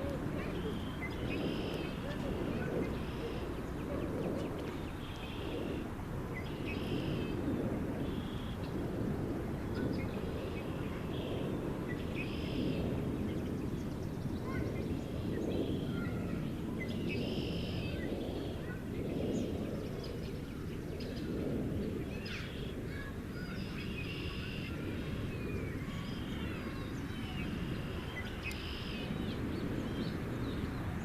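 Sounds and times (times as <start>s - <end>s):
birds chirping and calling: 0.0s - 7.4s, 22.0s - 31.0s
steady low rumble: 0.0s - 31.0s.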